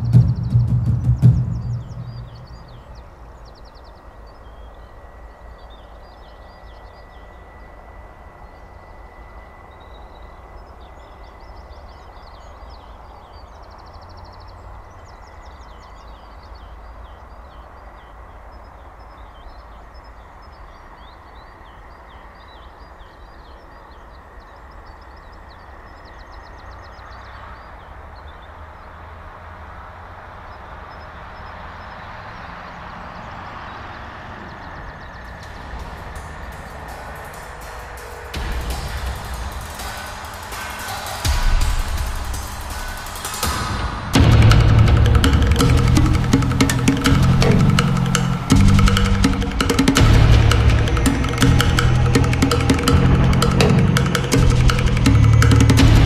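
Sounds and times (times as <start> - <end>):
low rumble: 0.0 - 5.6, 35.0 - 56.0
birds chirping and trilling: 0.0 - 56.0.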